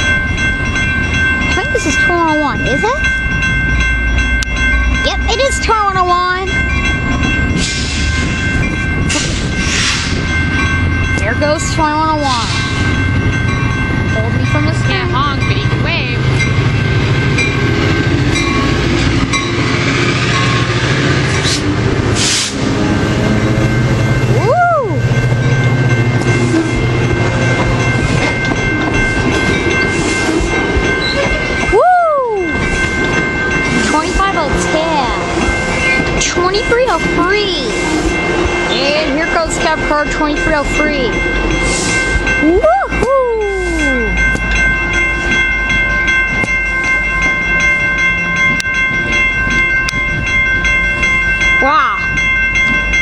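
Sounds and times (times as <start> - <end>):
bell ringing: 0.0 - 21.5, 22.6 - 53.0
locomotive rumble: 0.0 - 53.0
steady high tones: 0.0 - 53.0
train cars rolling past: 0.0 - 53.0.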